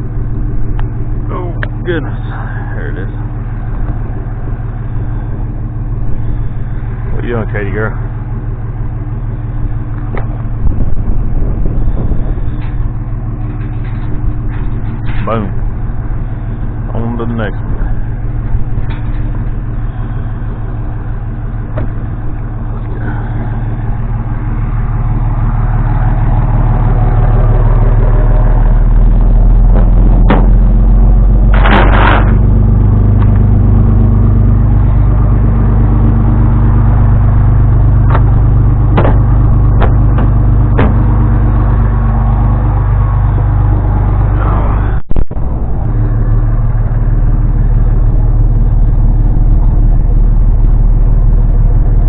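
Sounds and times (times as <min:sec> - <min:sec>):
vehicle engine running: 0:00.0 - 0:52.0
sharp knocks: 0:29.7 - 0:30.8, 0:38.1 - 0:41.3.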